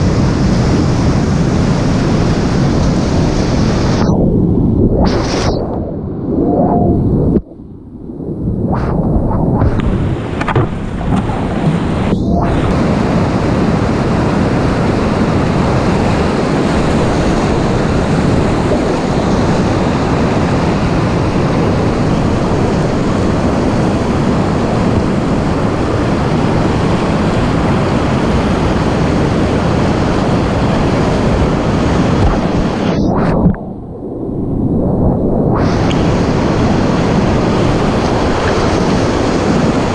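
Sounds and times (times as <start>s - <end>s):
whitewater rushing: 9.0s - 33.5s.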